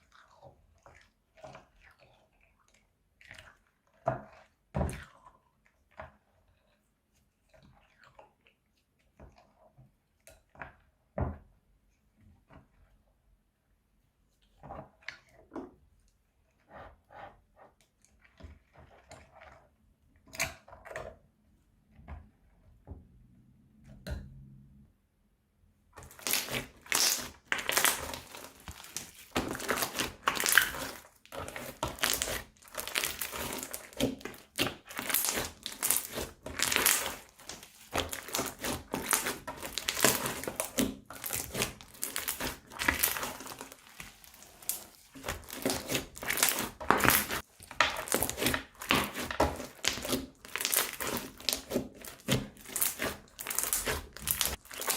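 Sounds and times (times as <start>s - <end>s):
slime squishing: 0.0s - 11.2s, 26.0s - 54.9s
plastic bag crinkling: 26.1s - 54.9s.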